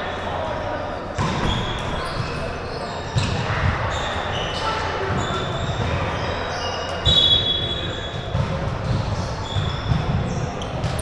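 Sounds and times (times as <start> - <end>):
crowd chatter: 0.0 - 11.0
basketball bouncing on gym floor: 8.1 - 11.0.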